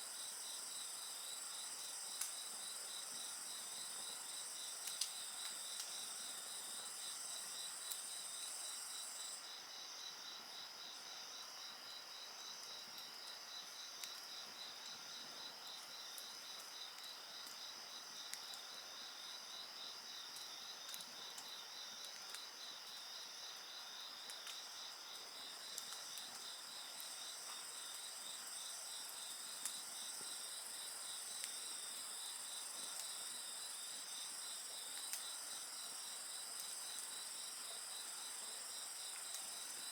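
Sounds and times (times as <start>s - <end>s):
wood fire crackling and popping: 4.8s - 6.0s.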